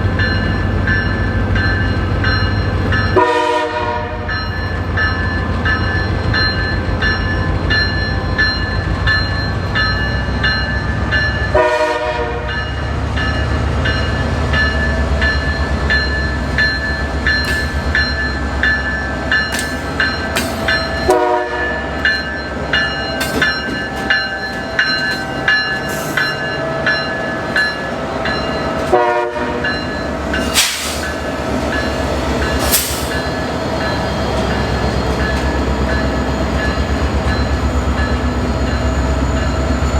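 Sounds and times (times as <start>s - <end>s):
diesel locomotive engine rumble: 0.0s - 39.9s
train wheels clicking over rail joints: 13.9s - 21.2s, 21.9s - 26.6s, 29.7s - 38.2s.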